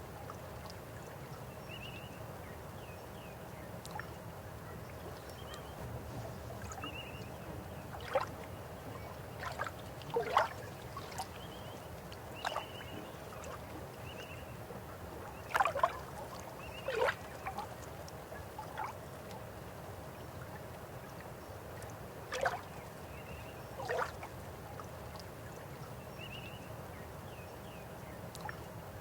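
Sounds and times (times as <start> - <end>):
water gurgles and plops: 5.0 - 19.4, 21.8 - 22.7, 23.8 - 25.2.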